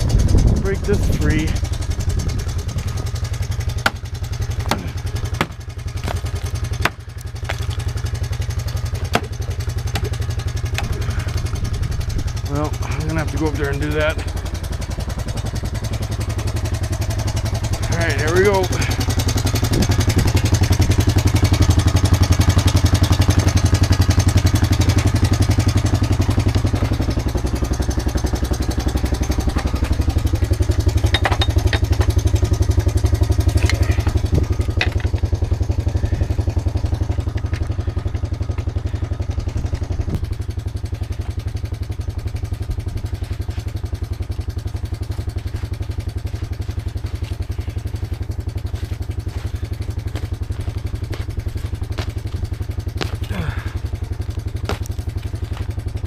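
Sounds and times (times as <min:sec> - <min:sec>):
quad bike engine idling: 0:00.0 - 0:56.0
sharp metallic clanks: 0:31.0 - 0:32.2.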